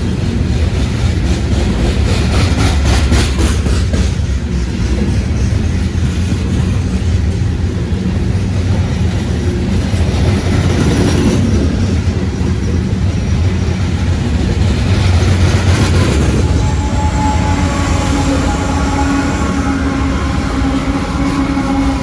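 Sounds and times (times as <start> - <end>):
freight train rumbling past: 0.0 - 22.0
train wheel clatter: 0.0 - 22.0.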